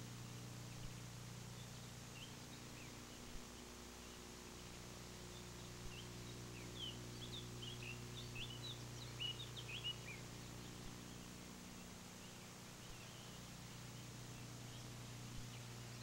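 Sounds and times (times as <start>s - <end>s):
low hum: 0.0s - 16.0s
small birds chirping: 0.0s - 16.0s.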